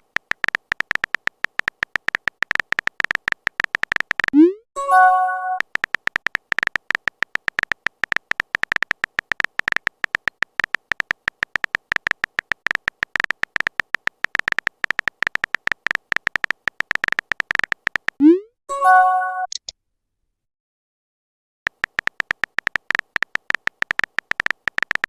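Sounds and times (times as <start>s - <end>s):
phone keyboard tapping clicks: 0.0s - 4.4s, 5.0s - 18.2s, 21.7s - 25.0s.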